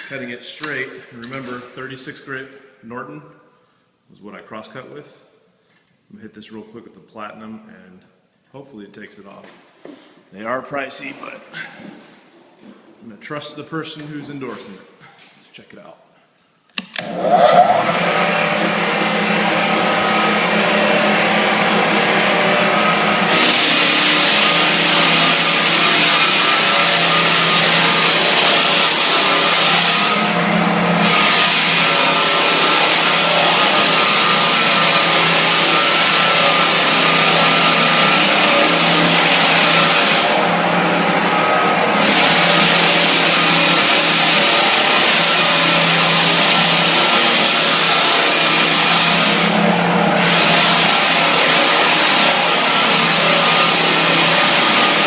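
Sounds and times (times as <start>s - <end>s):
drum sander motor hum: 17.0s - 55.0s.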